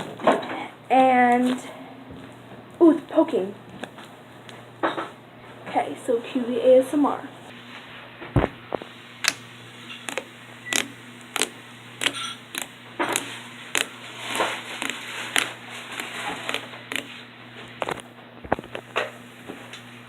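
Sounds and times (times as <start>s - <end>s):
slime popping and clicking: 10.1s - 13.9s, 14.8s - 17.1s.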